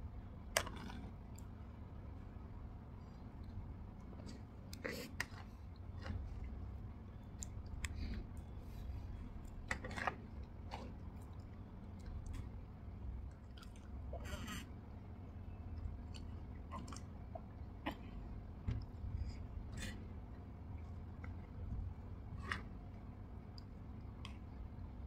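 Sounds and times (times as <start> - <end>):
steady low hum: 0.0 - 25.0
wet chewing and lip smacks: 13.2 - 14.1.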